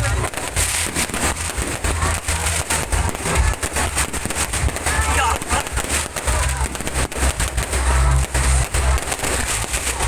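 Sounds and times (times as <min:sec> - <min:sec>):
fireworks bangs and crackles: 0:00.0 - 0:10.0
loud music: 0:00.0 - 0:10.0.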